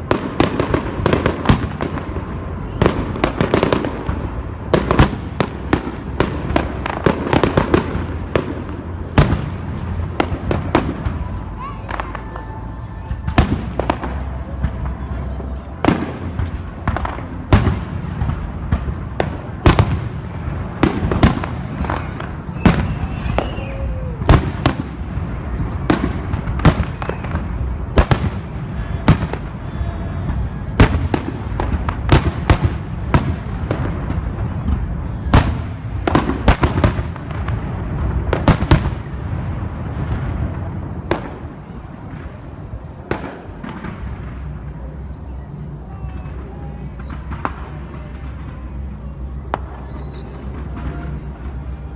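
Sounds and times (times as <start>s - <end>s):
low rumble: 0.0s - 36.2s
fireworks bangs and cracks: 0.0s - 51.9s.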